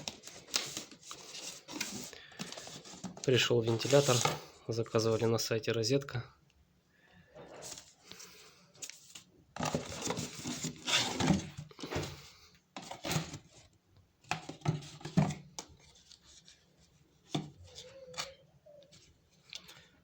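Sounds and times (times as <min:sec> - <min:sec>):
packaging rustling: 0:00.0 - 0:04.4, 0:08.8 - 0:11.9.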